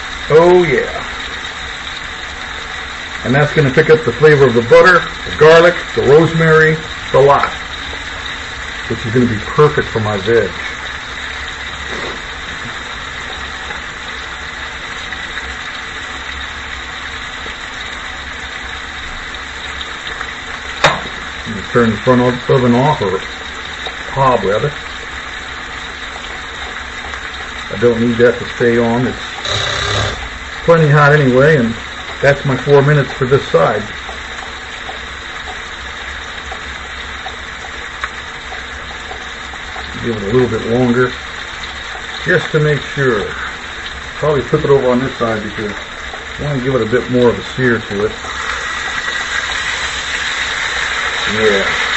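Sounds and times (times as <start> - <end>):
steak and onions sizzling: 0.0 - 51.9
steak sizzling in a skillet: 47.8 - 51.9.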